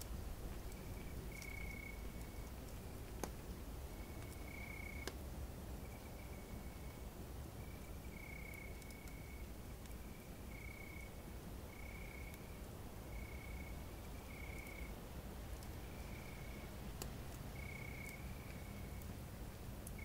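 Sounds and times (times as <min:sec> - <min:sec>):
faint campfire crackles: 0:00.0 - 0:20.0
crickets chirping: 0:00.6 - 0:02.5, 0:03.9 - 0:05.1, 0:05.8 - 0:15.0, 0:15.6 - 0:16.8, 0:17.5 - 0:19.1.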